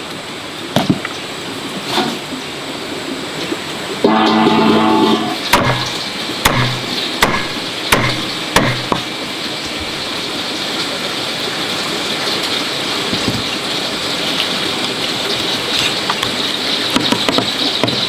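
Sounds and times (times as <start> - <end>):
steady hiss: 0.0 - 16.9
sharp knocks: 4.1 - 9.1.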